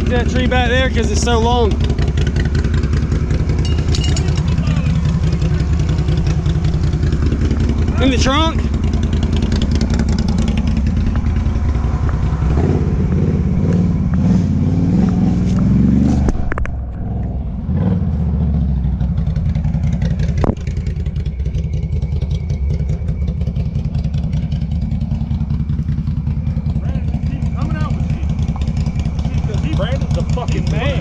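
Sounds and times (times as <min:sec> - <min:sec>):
atv engine revving and idling: 0:00.0 - 0:31.0.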